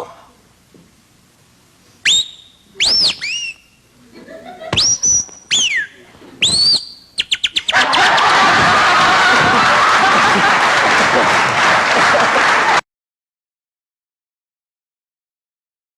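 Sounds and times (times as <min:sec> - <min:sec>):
man whistling bird calls: 0:02.0 - 0:03.8, 0:04.8 - 0:07.9
audience laughing: 0:04.0 - 0:04.9, 0:07.7 - 0:12.8
audience applauding: 0:07.8 - 0:12.8.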